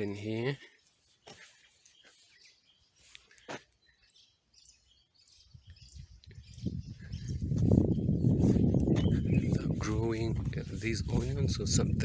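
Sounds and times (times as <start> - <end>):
faint bird chirps: 0.0 - 10.2
wind rumble on microphone: 5.4 - 12.0.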